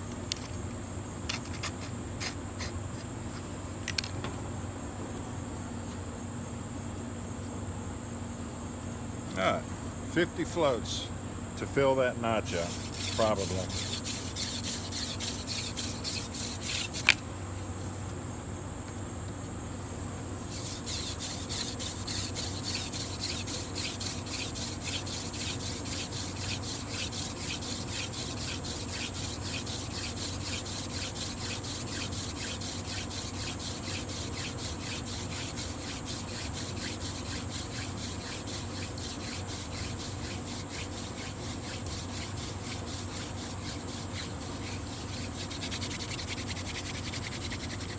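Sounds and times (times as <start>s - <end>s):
hand drill grinding wood: 1.3s - 3.1s, 12.4s - 17.2s, 20.4s - 47.9s.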